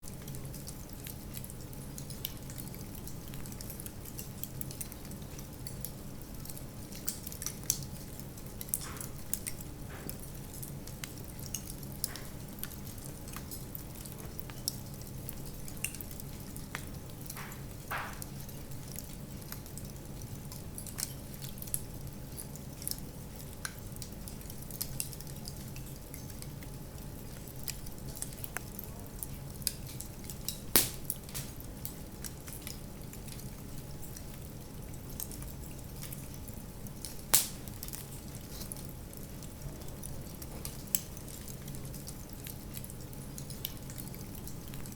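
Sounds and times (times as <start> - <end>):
wood fire crackling: 0.1 - 44.9
fire hissing: 30.7 - 31.7, 37.3 - 37.7.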